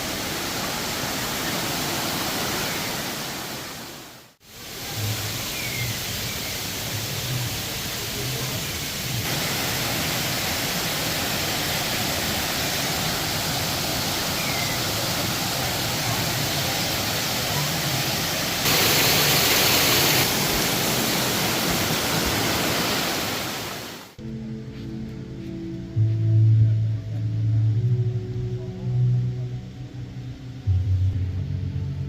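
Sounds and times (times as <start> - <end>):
rushing water: 0.0 - 24.2.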